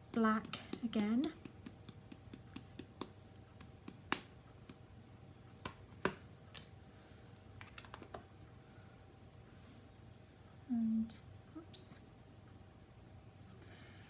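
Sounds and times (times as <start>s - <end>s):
papercraft tools tapping and clicking: 0.0s - 4.8s.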